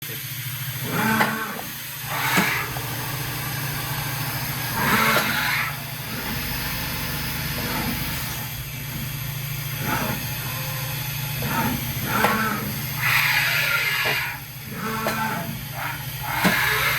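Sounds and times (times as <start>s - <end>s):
machining center humming: 0.0s - 16.9s
machine whirring surges: 0.1s - 16.9s.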